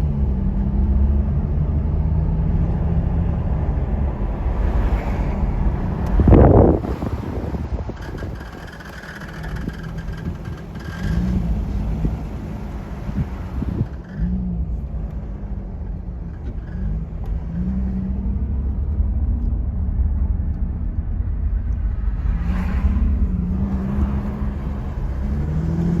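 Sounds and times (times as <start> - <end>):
car engine low rumble: 0.0 - 26.0
faint high squeaks: 6.8 - 14.4.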